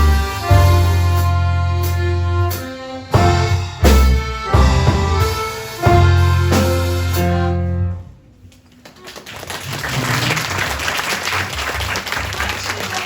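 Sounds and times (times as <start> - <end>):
accordion orchestra chord: 0.0 - 8.1
audience applause: 8.8 - 13.0.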